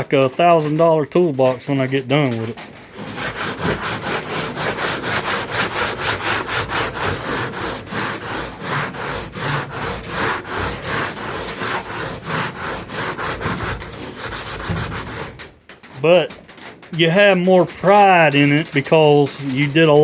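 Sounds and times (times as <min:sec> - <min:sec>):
hand sanding with sandpaper: 0:02.3 - 0:15.5.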